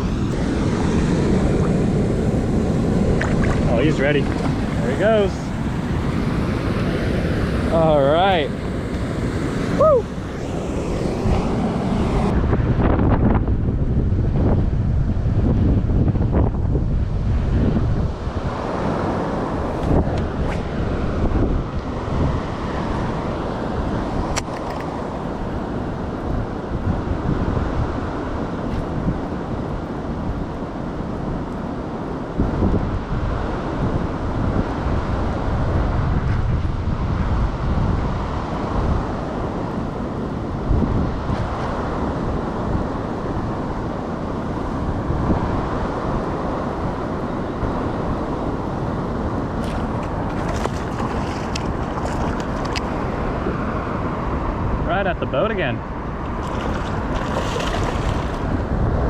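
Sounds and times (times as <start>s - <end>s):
rushing water: 0.0s - 10.6s, 49.5s - 54.5s, 55.8s - 59.0s
low rumbling gusts: 0.0s - 59.0s
wind buffeting microphone: 0.0s - 59.0s.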